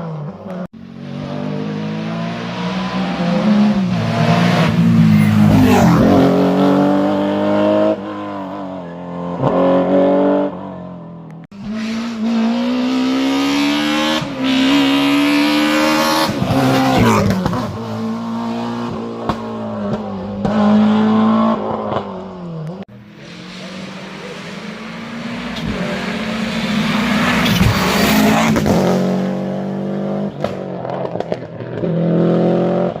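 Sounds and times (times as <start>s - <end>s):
rally car engines revving: 0.0s - 33.0s.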